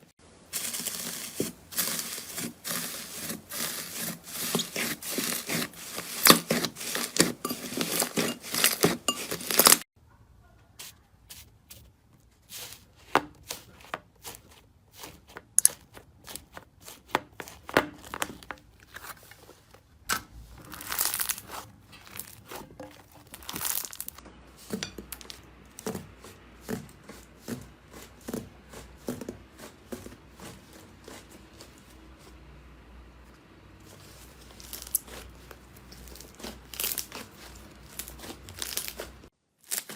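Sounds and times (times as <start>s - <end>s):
soft slime squishes: 0.5s - 39.9s
slime crackling and popping: 0.6s - 9.8s, 20.6s - 24.2s, 34.4s - 39.9s.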